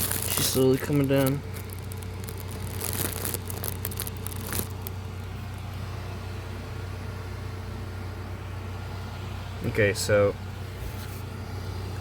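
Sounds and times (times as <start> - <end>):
faint clicks and crackles: 0.0 - 5.7.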